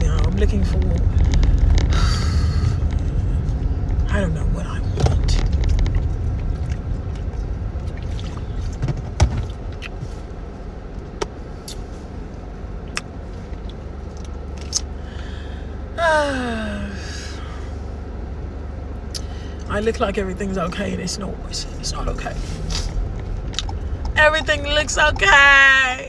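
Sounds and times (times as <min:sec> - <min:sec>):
car cabin low rumble: 0:00.0 - 0:26.0
woman sighing: 0:01.9 - 0:02.9, 0:15.1 - 0:17.7.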